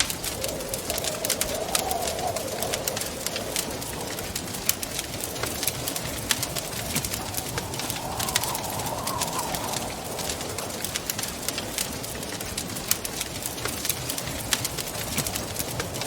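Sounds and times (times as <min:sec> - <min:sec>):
wavering whistling tone: 0:00.0 - 0:04.6, 0:06.9 - 0:10.9
wind rushing: 0:00.0 - 0:12.4
wood fire crackling and popping: 0:00.0 - 0:16.0.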